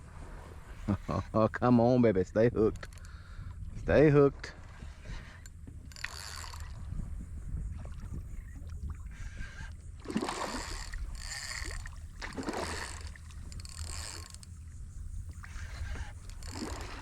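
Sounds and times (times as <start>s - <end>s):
wind rumble on microphone: 0.0s - 17.0s
fish splashing at water surface: 10.0s - 13.4s.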